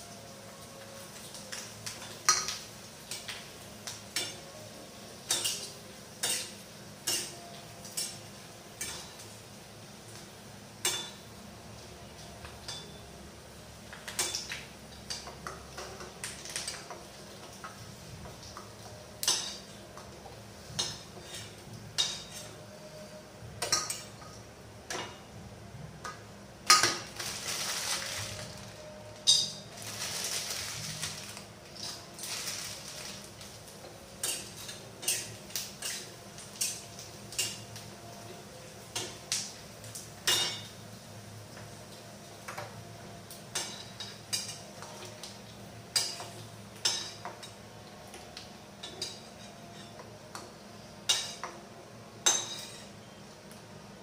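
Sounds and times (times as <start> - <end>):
metal utensils and pots clattering: 1.2 - 4.6, 5.2 - 9.3, 10.8 - 11.2, 12.6 - 13.0, 13.9 - 20.1, 20.7 - 22.6, 26.0 - 33.6, 34.2 - 37.8, 40.2 - 40.8, 43.5 - 45.3, 45.9 - 48.2, 48.8 - 51.6, 52.2 - 53.2.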